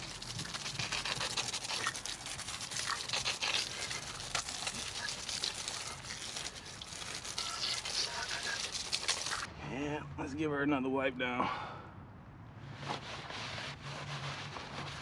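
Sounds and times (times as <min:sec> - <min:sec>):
splattering crackles: 0:00.0 - 0:09.5
water spray hissing: 0:00.0 - 0:09.5.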